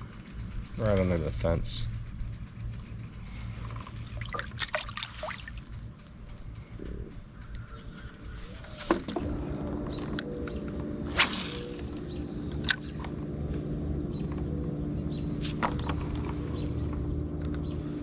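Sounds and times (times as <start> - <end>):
high insect drone: 0.0 - 18.0
low steady hum: 0.0 - 18.0
water sounds: 4.0 - 5.8.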